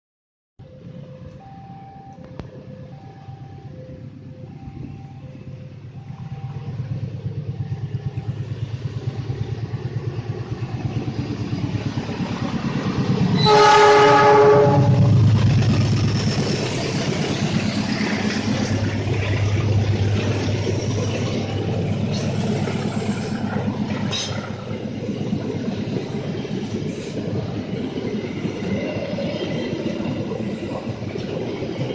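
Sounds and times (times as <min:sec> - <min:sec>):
locomotive rumble: 0:00.6 - 0:31.9
train wheels rumbling and clattering: 0:04.0 - 0:31.9
train horn: 0:13.3 - 0:15.3.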